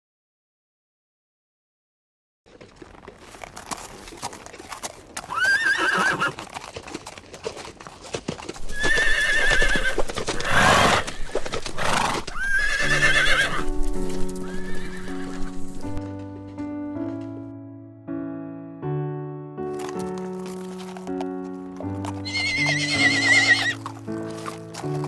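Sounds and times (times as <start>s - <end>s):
piano music: 12.9s - 25.0s.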